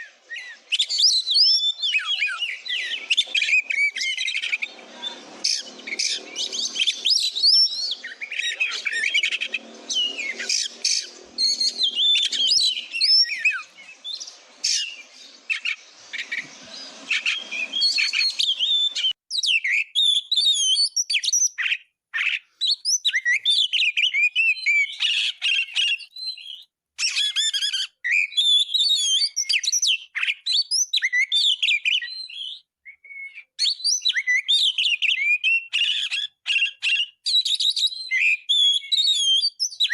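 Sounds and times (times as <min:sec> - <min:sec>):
faint low background noise: 0:00.0 - 0:19.1
magpie-robin singing: 0:00.0 - 0:39.9.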